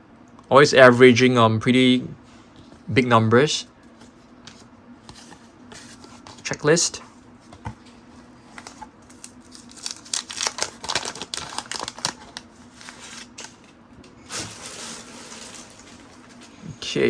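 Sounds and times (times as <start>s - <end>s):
cards and paper wrapping crackling: 8.5s - 13.7s
paper wrapping rustling: 8.5s - 16.5s.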